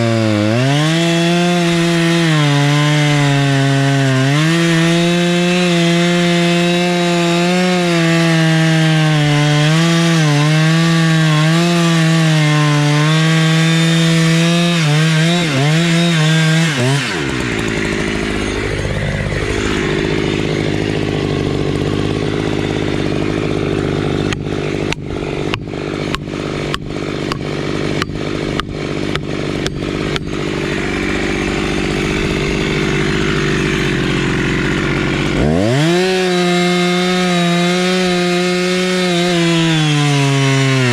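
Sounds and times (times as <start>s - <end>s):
chainsaw cutting wood: 0.0s - 40.9s
sharp knocks: 24.3s - 33.9s.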